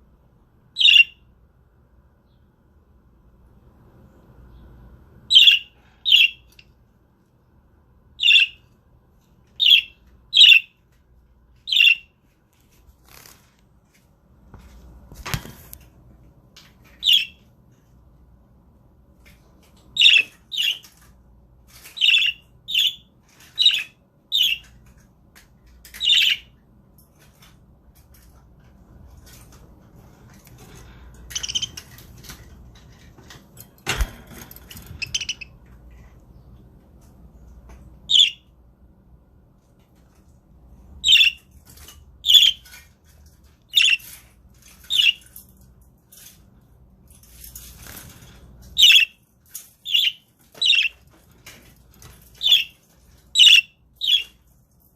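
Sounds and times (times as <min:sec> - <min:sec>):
budgerigars chirping: 0:00.8 - 0:01.2, 0:05.3 - 0:06.5, 0:08.2 - 0:08.6, 0:09.6 - 0:10.7, 0:11.7 - 0:12.1, 0:17.0 - 0:17.4, 0:20.0 - 0:20.8, 0:22.0 - 0:24.7, 0:31.3 - 0:31.8, 0:35.0 - 0:35.6, 0:38.1 - 0:38.4, 0:41.0 - 0:41.4, 0:42.2 - 0:42.6, 0:43.7 - 0:44.1, 0:44.9 - 0:45.2, 0:48.8 - 0:49.2, 0:49.8 - 0:51.0, 0:52.4 - 0:52.8, 0:53.4 - 0:54.3.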